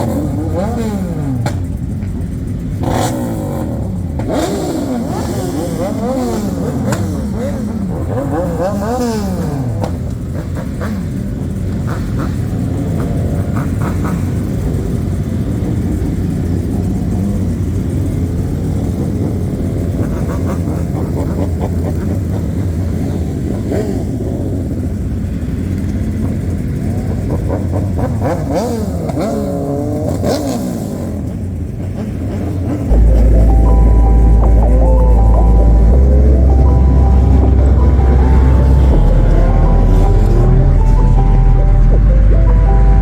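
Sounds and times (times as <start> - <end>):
car engines revving: 0.0 - 43.0
loud deep bass: 32.9 - 43.0.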